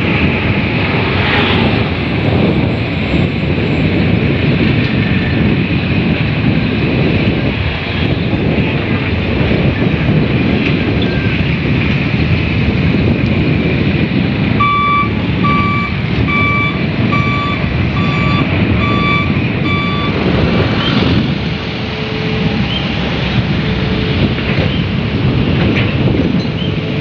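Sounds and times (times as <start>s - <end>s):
heavy diesel engine running: 0.0s - 27.0s
backup alarm beeping: 14.6s - 20.3s.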